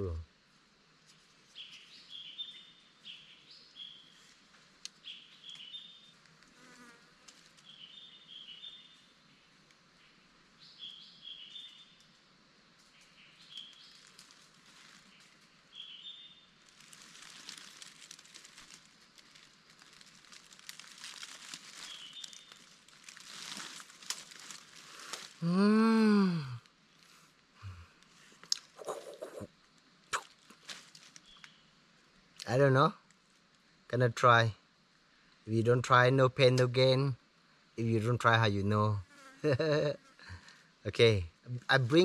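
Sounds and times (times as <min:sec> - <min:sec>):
rustling crackling noise: 0:04.1 - 0:07.9, 0:12.8 - 0:25.6, 0:26.5 - 0:31.6.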